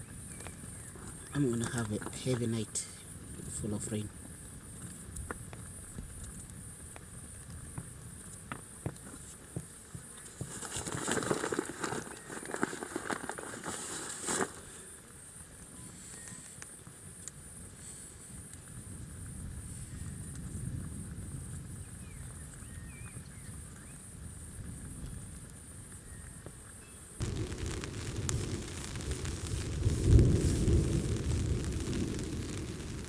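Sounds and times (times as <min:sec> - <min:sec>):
high-pitched hiss: 0:00.0 - 0:04.2, 0:26.3 - 0:33.0
rustling and crackling: 0:00.0 - 0:33.0.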